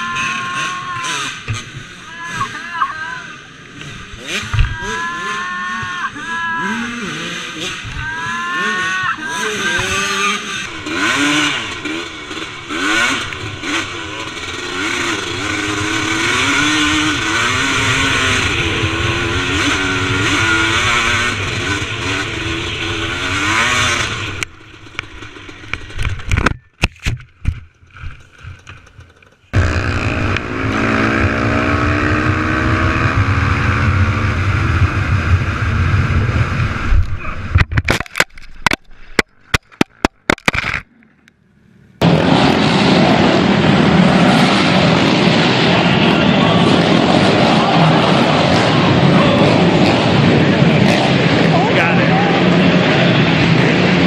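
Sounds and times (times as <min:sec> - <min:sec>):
motorcycle engines revving: 0:00.0 - 0:37.7, 0:41.7 - 0:54.0
engine with climbing pitch: 0:00.0 - 0:54.0
sharp knocks and clatter: 0:24.4 - 0:29.6, 0:37.5 - 0:40.9.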